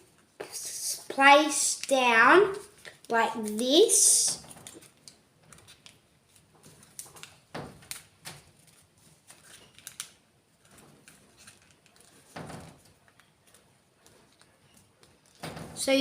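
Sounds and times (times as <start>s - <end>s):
paper rustling and crinkling: 4.4s - 15.6s.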